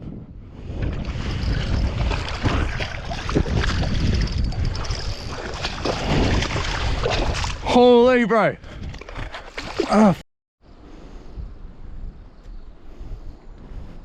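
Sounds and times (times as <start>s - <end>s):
wind on microphone: 0.0s - 7.7s, 8.6s - 9.8s, 10.7s - 14.0s
water splashing and sloshing: 0.6s - 7.9s, 8.6s - 10.2s.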